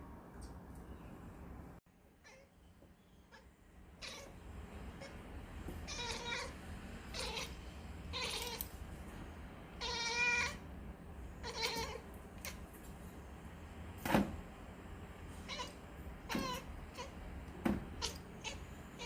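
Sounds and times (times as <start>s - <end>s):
cat meowing: 2.2s - 2.6s, 3.3s - 4.4s, 5.9s - 8.7s, 9.8s - 10.6s, 11.4s - 12.6s, 15.4s - 17.2s, 18.0s - 19.0s.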